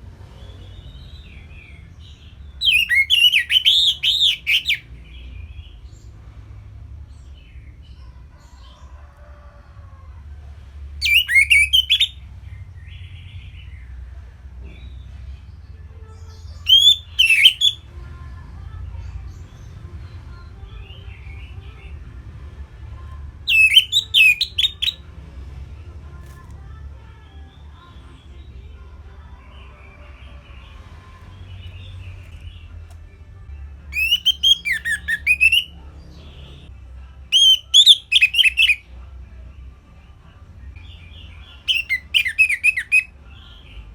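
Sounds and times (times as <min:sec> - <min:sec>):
thrush singing: 0:00.2 - 0:05.8, 0:11.0 - 0:14.0, 0:16.2 - 0:43.9
thrush singing whistled notes: 0:02.6 - 0:04.8, 0:11.0 - 0:12.2, 0:16.6 - 0:17.8, 0:23.5 - 0:25.0, 0:33.9 - 0:35.7, 0:37.3 - 0:38.8, 0:41.7 - 0:43.1.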